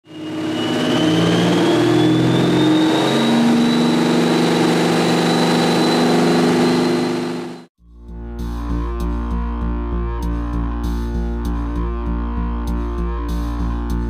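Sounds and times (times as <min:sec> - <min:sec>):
high supercharger whine: 0:00.0 - 0:07.7
car engine running: 0:00.1 - 0:07.7.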